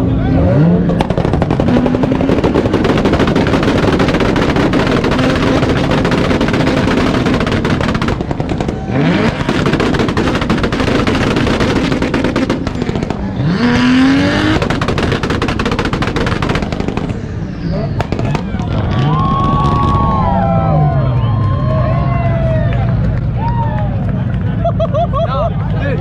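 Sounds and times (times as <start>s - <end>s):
exhaust bangs crackling: 0.0s - 26.0s
engine revving on rev limiter: 8.6s - 15.6s.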